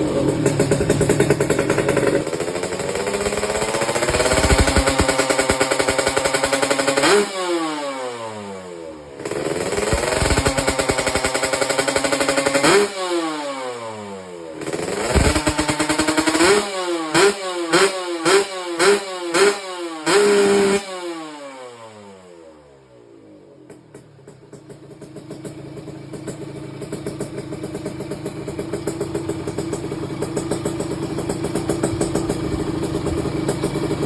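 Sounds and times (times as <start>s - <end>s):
two-stroke motorcycle revving: 0.0s - 34.0s.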